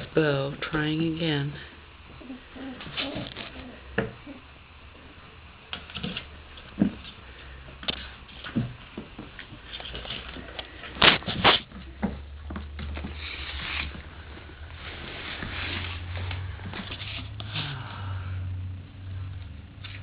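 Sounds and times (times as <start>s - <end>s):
puppies scuffing and pattering: 7.9s - 17.4s.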